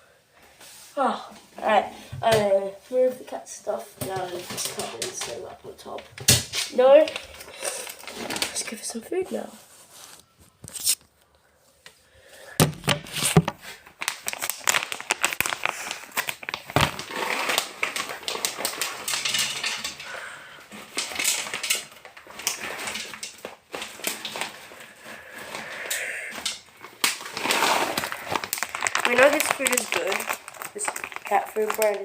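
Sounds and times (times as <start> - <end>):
bag crinkling: 6.5 - 8.8, 12.6 - 32.0
kibble rattling into a bowl: 27.4 - 32.0.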